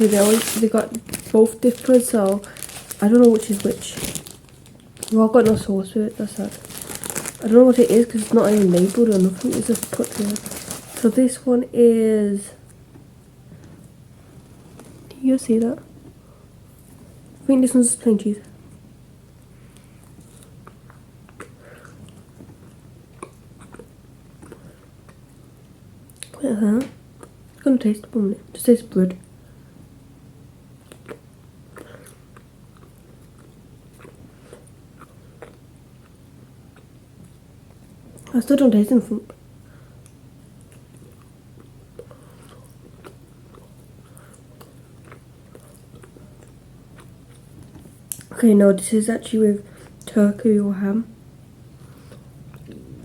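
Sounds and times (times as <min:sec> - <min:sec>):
biting and chewing bread: 0:00.0 - 0:05.6, 0:06.2 - 0:11.2, 0:30.8 - 0:37.9, 0:40.5 - 0:48.3
person chewing: 0:19.8 - 0:25.3, 0:30.8 - 0:37.8, 0:40.0 - 0:48.3, 0:51.8 - 0:53.0.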